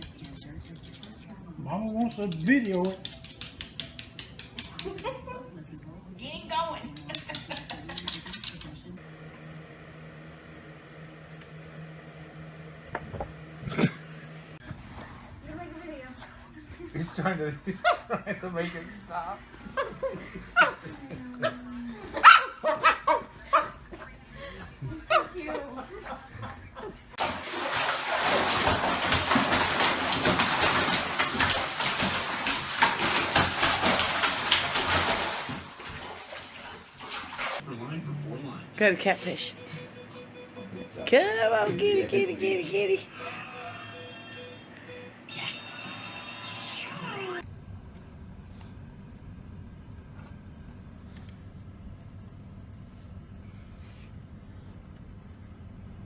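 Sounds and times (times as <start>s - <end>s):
water splashing and rushing: 27.2s - 37.6s.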